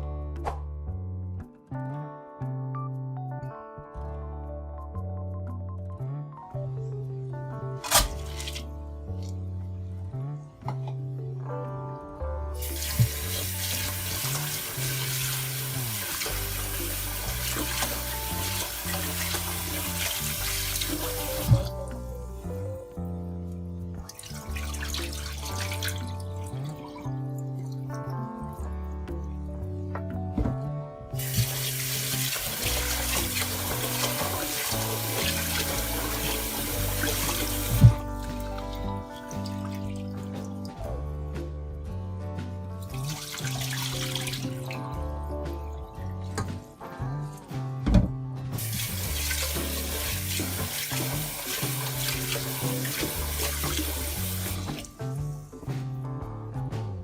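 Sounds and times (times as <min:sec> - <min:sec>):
background music: 0:00.0 - 0:57.0
water running from tap: 0:12.6 - 0:22.6, 0:24.1 - 0:28.0, 0:31.2 - 0:40.5, 0:42.8 - 0:45.0, 0:48.6 - 0:55.2.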